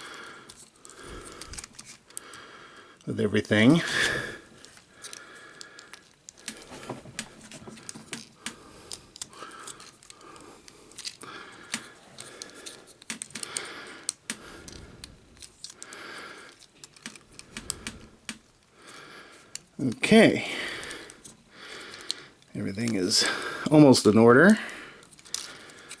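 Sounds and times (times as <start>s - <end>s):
plastic toy clicks and snaps: 11.0s - 14.8s, 15.4s - 18.5s.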